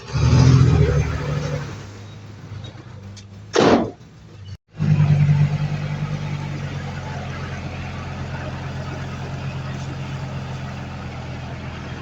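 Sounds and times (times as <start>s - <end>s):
heavy diesel engine running: 4.7s - 12.0s.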